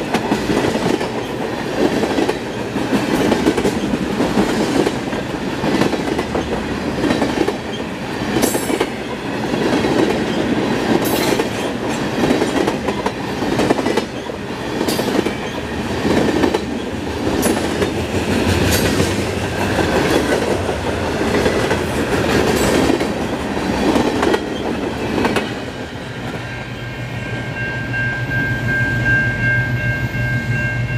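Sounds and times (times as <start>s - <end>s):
train wheels clacking on rails: 0.0s - 26.7s
steady high tone: 26.3s - 30.9s.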